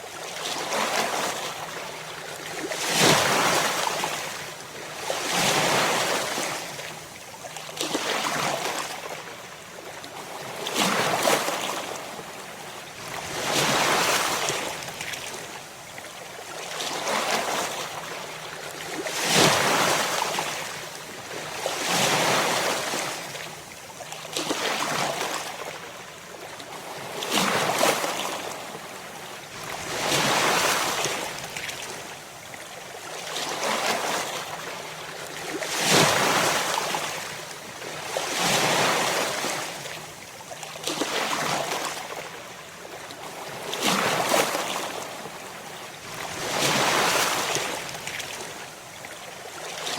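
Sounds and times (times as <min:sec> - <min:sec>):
ocean waves breaking on shore: 0:26.7 - 0:49.9.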